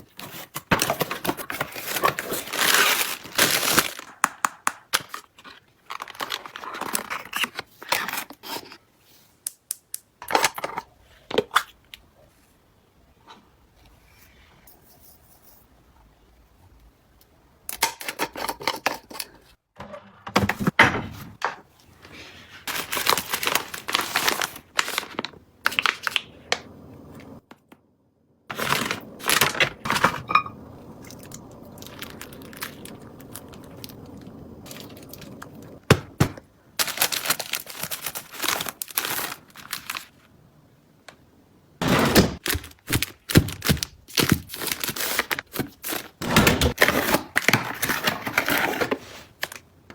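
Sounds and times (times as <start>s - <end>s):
packaging crinkling and tearing: 0.0s - 8.8s, 22.6s - 26.6s, 28.5s - 40.3s, 42.2s - 49.6s.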